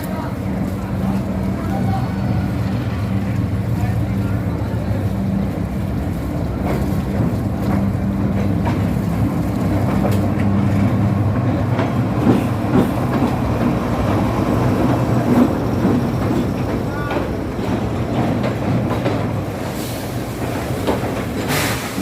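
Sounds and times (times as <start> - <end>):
locomotive engine hum: 0.0 - 22.0
train wheels clacking on rail joints: 0.0 - 22.0.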